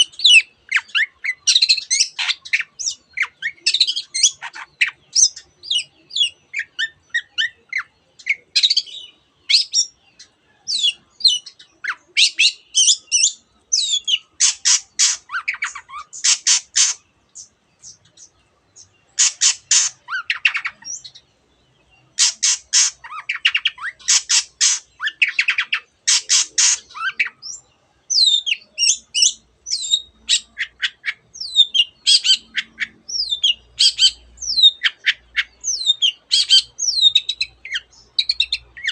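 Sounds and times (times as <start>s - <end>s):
bird singing high chirps: 0.0s - 38.9s
harsh rattling bird notes: 19.2s - 20.7s, 22.2s - 23.2s.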